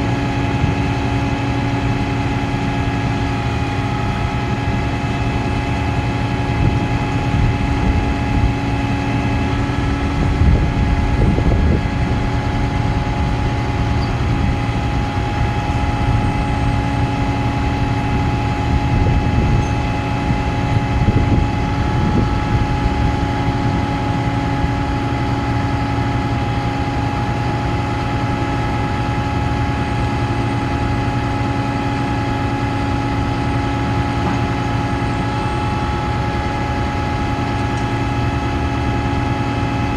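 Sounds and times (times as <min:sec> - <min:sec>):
hydraulic whine: 0:00.0 - 0:39.9
truck engine low drone: 0:00.0 - 0:39.9.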